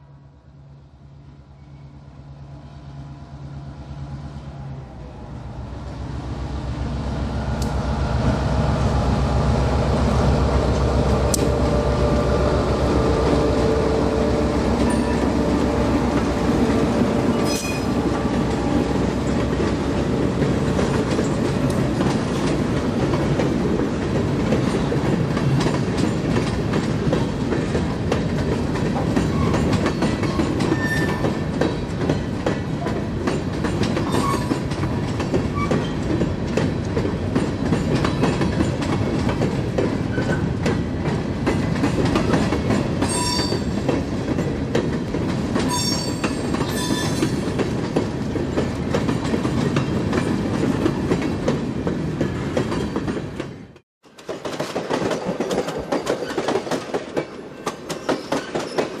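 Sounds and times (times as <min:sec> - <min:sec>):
train wheels rumbling on rail: 0:00.0 - 0:59.0
high-pitched wheel squeals: 0:30.7 - 0:31.3, 0:43.1 - 0:43.7, 0:45.7 - 0:47.4.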